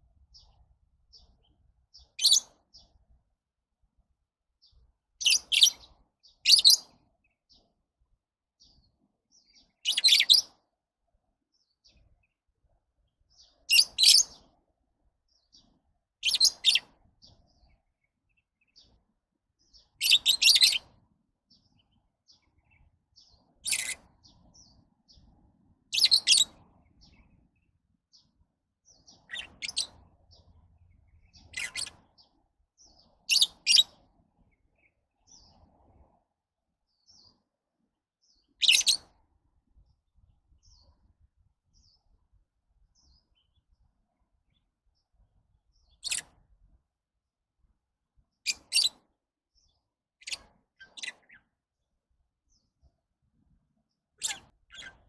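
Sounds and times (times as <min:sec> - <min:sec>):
lovebirds chirping: 0:00.1 - 0:03.1, 0:04.6 - 0:07.7, 0:08.6 - 0:10.6, 0:13.3 - 0:14.6, 0:15.3 - 0:35.7, 0:38.2 - 0:39.2, 0:42.9 - 0:46.4, 0:48.3 - 0:51.6, 0:53.8 - 0:55.0.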